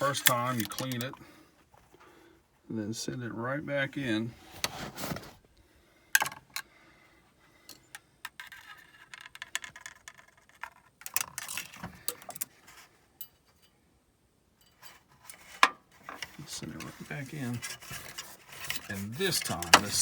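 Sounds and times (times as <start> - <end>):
soft rubbing: 14.9 - 20.0.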